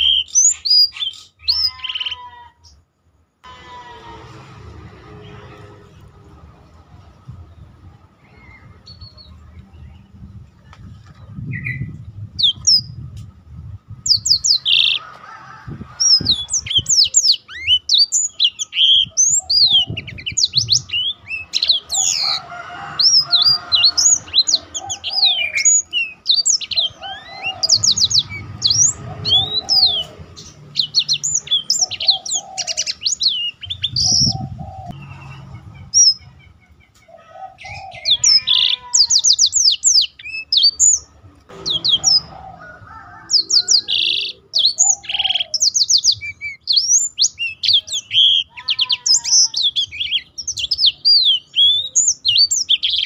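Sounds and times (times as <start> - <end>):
songbirds twittering song: 0.0 - 3.5, 5.0 - 53.0
low rumble: 3.5 - 14.7, 41.0 - 44.0.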